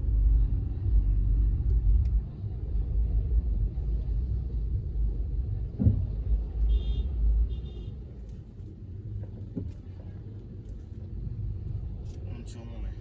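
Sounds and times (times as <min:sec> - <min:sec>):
car rumbling in traffic: 0:00.0 - 0:13.0
thump: 0:05.8 - 0:06.2.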